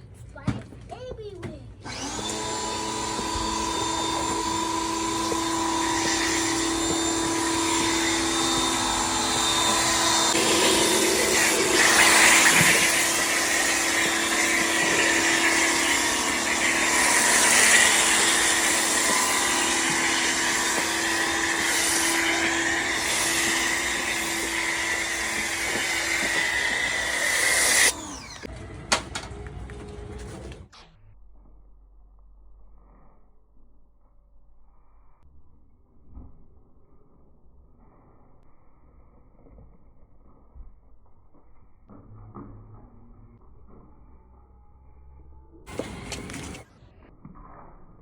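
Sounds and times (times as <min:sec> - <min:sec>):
car wash motor whining: 0:01.9 - 0:30.7.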